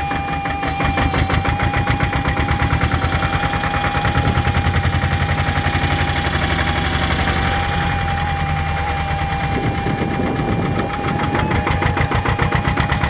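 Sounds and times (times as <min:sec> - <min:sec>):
steady high whine: 0:00.0 - 0:13.0
tractor diesel engine chugging: 0:00.0 - 0:13.0.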